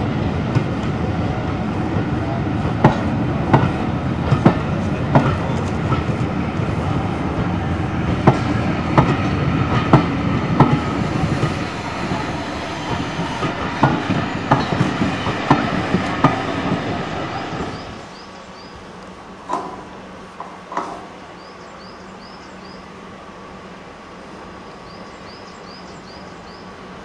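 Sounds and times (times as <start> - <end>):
train rumble: 0.0 - 27.0
train wheels knocking on rail joints: 0.4 - 1.1, 1.9 - 18.0.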